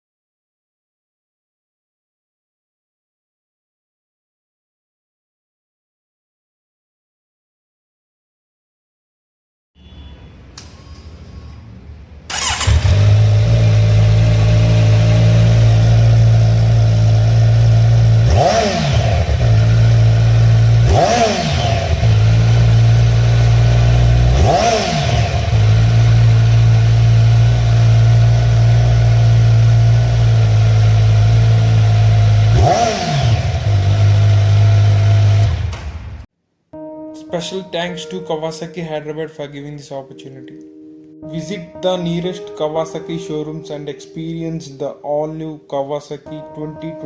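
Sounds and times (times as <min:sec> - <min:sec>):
motorcycle engine starting and idling: 0:12.3 - 0:36.3.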